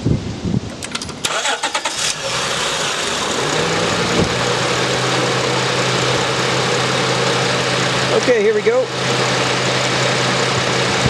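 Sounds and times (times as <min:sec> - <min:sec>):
starter cranking: 0:00.8 - 0:04.6
car engine idling: 0:01.1 - 0:11.0.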